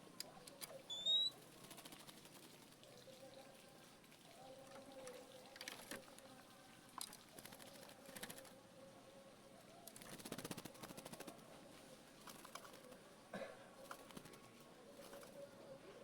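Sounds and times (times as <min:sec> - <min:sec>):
bird clicks and high chirps: 0:00.2 - 0:01.4.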